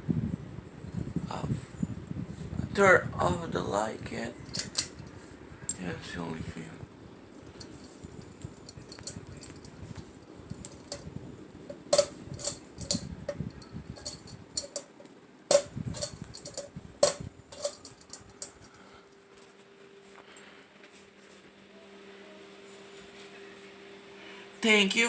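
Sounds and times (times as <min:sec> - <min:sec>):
faint steady hum: 0:00.0 - 0:25.0
light metallic clinks: 0:04.4 - 0:05.2, 0:07.4 - 0:18.8.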